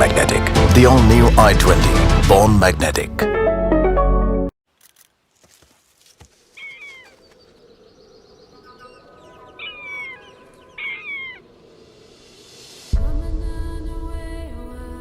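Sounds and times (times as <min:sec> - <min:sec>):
birds chirping: 0:05.8 - 0:12.5.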